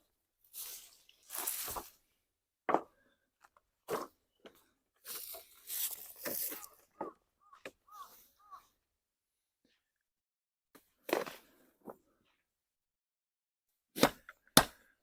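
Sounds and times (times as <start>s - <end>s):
dry brush crunching and tearing: 0.6s - 1.9s, 5.1s - 6.8s.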